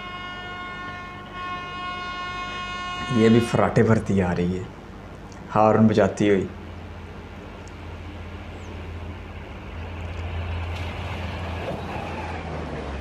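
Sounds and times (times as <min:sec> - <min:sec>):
train passing at high speed: 0:06.6 - 0:13.0.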